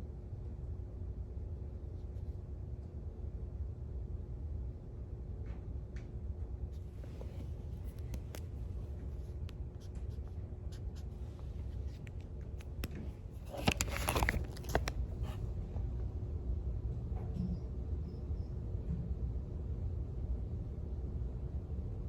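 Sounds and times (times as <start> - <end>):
low room hum: 0.0 - 22.0
paper rustling: 6.8 - 15.5.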